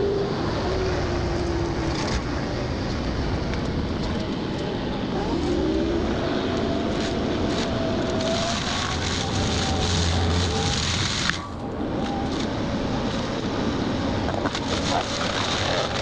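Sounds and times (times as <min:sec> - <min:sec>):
mulcher machine drone with whine: 0:00.0 - 0:16.0.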